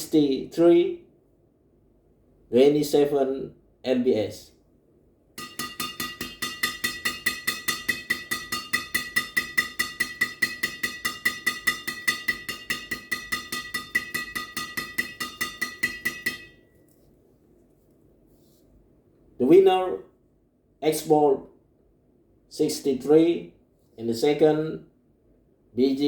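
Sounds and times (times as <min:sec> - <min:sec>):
racket strings struck ringing ping: 0:05.4 - 0:16.6.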